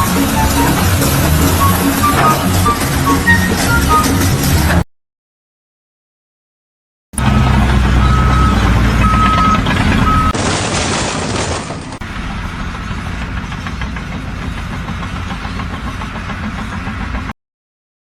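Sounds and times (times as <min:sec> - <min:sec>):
repeating beep: 0:00.0 - 0:04.4, 0:08.0 - 0:10.3
heavy machinery engine: 0:00.0 - 0:04.8, 0:07.2 - 0:17.3
steady machine din: 0:00.0 - 0:04.8.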